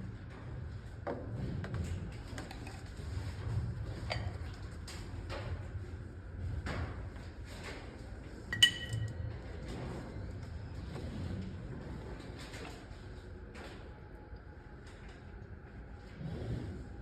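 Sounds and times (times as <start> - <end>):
sharp ringing clink: 8.6 - 9.1.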